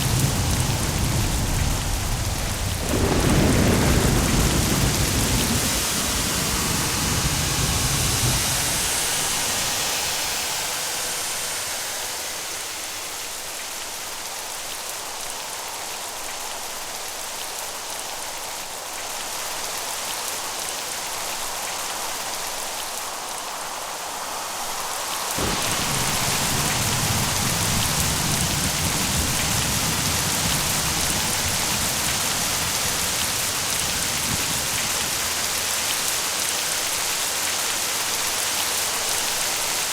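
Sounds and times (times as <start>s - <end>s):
thunder rumbling: 0.0s - 10.2s, 25.4s - 36.2s
steady rainfall: 0.0s - 39.9s.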